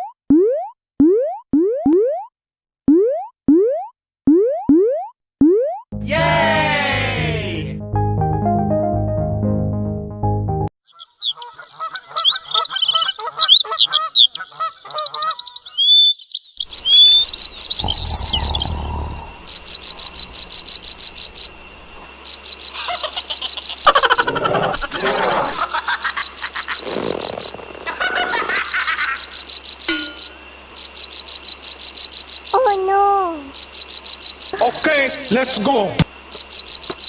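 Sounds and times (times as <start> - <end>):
birds chirping and warbling: 10.8 - 30.9
frogs croaking: 10.9 - 37.0
cricket chirping: 14.5 - 32.8, 33.5 - 37.0.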